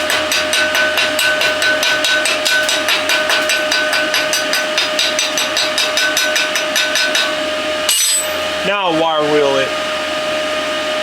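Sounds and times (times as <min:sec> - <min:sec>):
chipping hammer striking steel plate: 0:00.0 - 0:08.4
steel plate ringing: 0:00.0 - 0:08.5.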